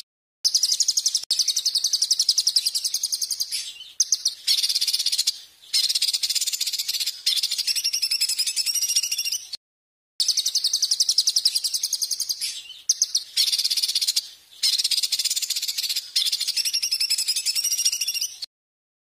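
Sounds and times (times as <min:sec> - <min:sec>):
songbird high-pitched trill: 0:00.5 - 0:09.6, 0:10.2 - 0:18.5.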